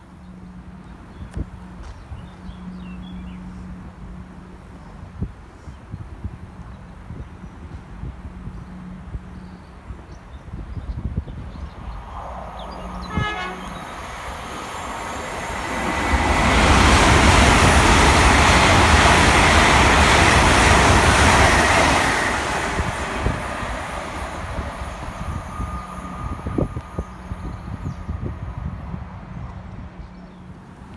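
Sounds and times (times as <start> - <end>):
train passing at speed: 0.0 - 30.9
train horn blast: 12.6 - 14.7.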